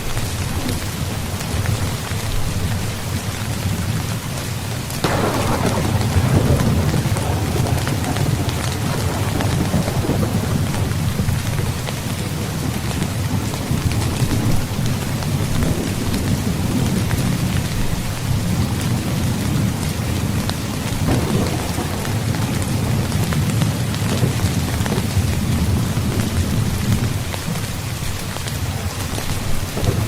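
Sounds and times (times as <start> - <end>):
heavy rain: 0.0 - 30.0
raindrops ticking: 4.9 - 30.0
low rumble of thunder: 5.0 - 30.0.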